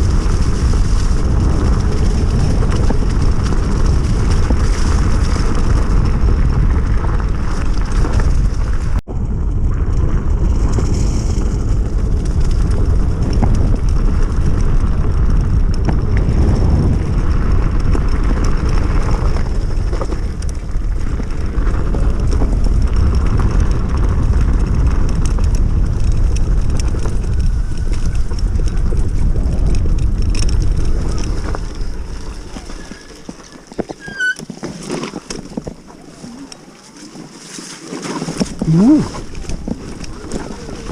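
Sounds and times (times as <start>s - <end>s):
wind rush on microphone: 0.0s - 34.4s, 38.1s - 40.9s
tyre noise: 9.7s - 40.9s.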